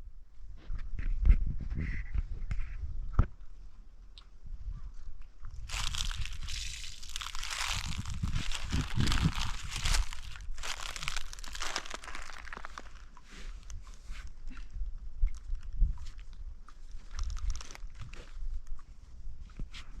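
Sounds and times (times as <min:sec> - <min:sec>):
heavy low thuds: 0:05.7 - 0:12.9.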